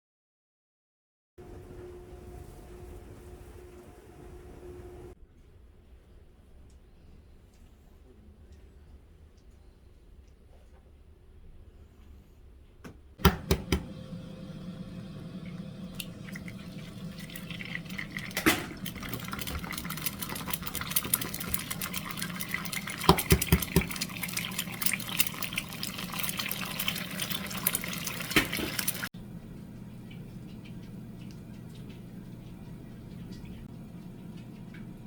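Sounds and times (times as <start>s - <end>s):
tap water running into sink: 13.2s - 29.1s.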